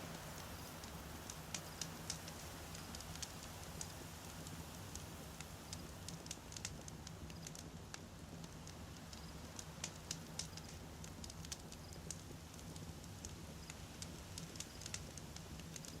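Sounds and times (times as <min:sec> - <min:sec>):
campfire crackling and popping: 0:00.1 - 0:16.0.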